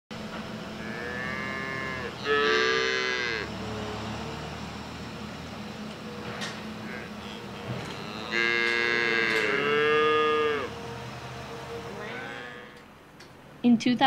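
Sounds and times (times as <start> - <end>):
steady low hum: 0.1 - 14.0
cows mooing: 0.8 - 3.7, 6.7 - 11.0, 11.8 - 12.9.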